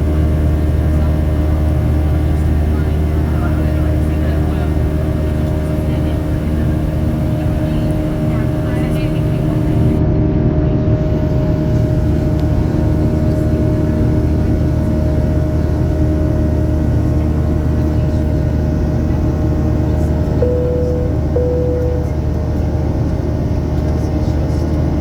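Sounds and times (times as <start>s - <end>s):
jet engine drone in cabin: 0.0s - 25.0s
steady tone: 20.4s - 22.3s.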